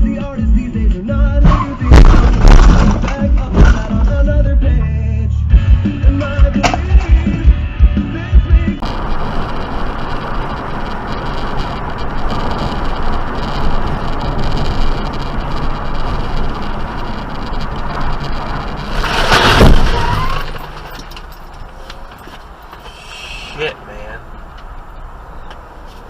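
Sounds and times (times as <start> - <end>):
car road noise: 0.0 - 26.0
harsh noise burst: 8.8 - 20.9.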